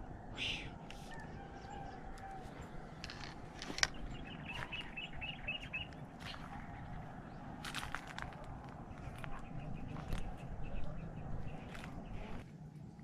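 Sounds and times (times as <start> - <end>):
bird chirping: 1.6 - 7.6, 8.9 - 12.4.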